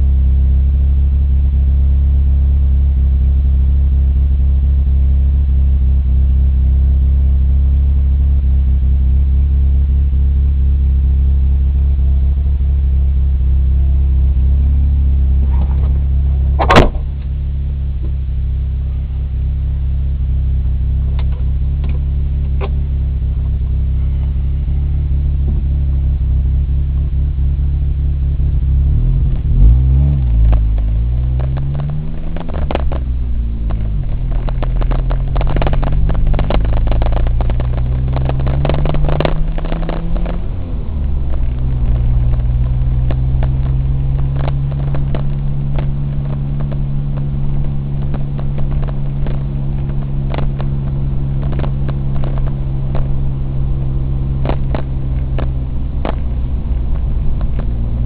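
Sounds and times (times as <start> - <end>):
car engine idling: 0.0 - 58.0
sharp knock: 16.6 - 17.2
engine revving: 21.1 - 58.0.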